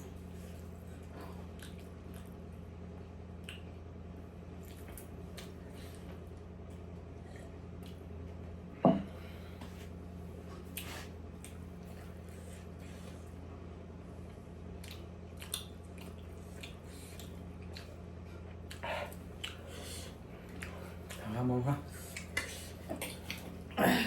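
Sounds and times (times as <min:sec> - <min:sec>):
low electrical hum: 0:00.0 - 0:24.0
wet chewing and lip smacks: 0:00.5 - 0:02.6, 0:03.4 - 0:03.8, 0:04.5 - 0:06.5, 0:07.7 - 0:08.1, 0:14.7 - 0:23.7.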